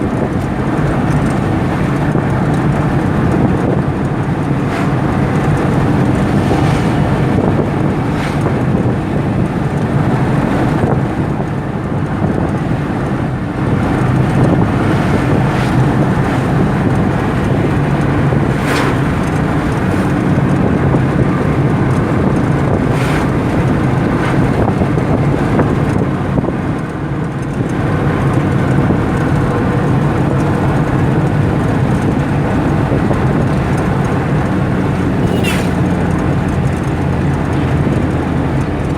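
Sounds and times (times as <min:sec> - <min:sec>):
car road and engine rumble: 0:00.0 - 0:38.9
wind on microphone: 0:00.0 - 0:38.9
short sharp sounds: 0:35.2 - 0:35.9.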